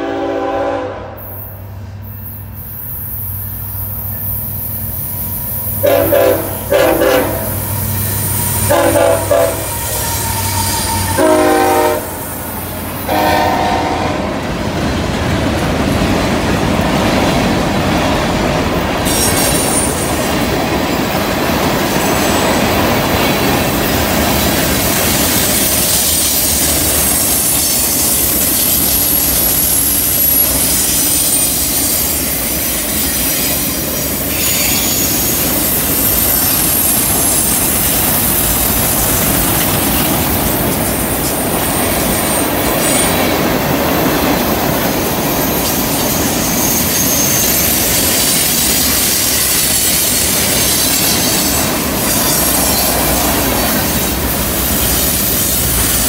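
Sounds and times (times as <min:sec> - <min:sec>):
freight cars rumbling on rails: 0:01.7 - 0:56.0
wheel squeal: 0:09.6 - 0:11.2, 0:25.3 - 0:40.8, 0:45.0 - 0:54.1.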